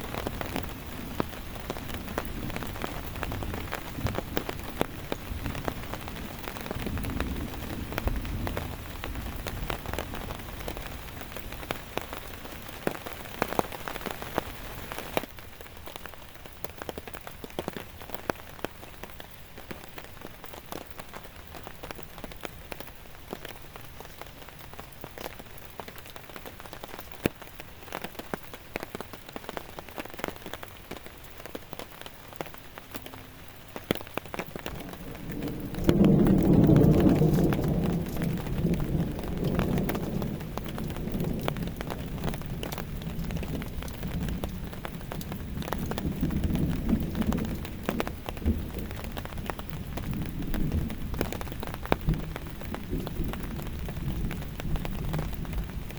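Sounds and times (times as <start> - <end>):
rain drops tapping on a surface: 0.0 - 55.9
low rumble: 34.6 - 42.4.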